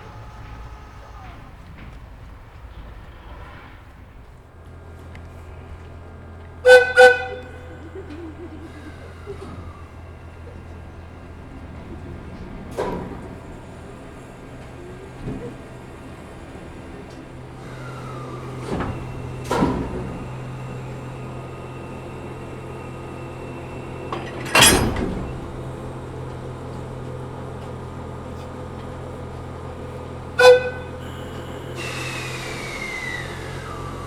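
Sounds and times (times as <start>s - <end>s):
low train hum: 0.0s - 34.0s
falling squeal: 17.6s - 25.7s, 30.4s - 34.0s
sharp metallic clanks: 24.1s - 25.7s
hiss: 30.6s - 34.0s.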